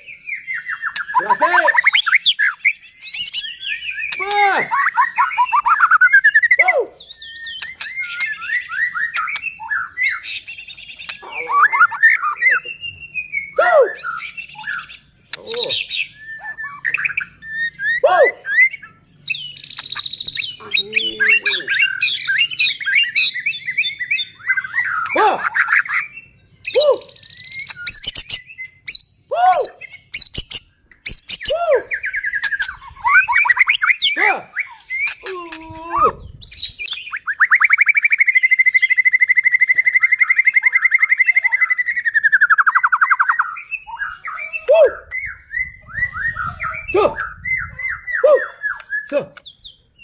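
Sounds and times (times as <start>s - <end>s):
songbird singing: 0.0s - 50.0s.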